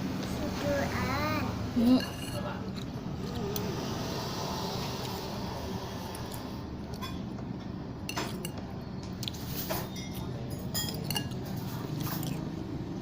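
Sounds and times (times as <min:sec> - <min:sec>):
spoon clinking against bowl: 0:09.8 - 0:11.6.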